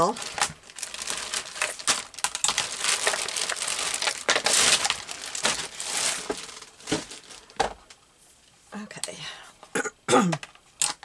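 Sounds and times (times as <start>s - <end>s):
paper rustling and crackling: 0.0s - 7.6s.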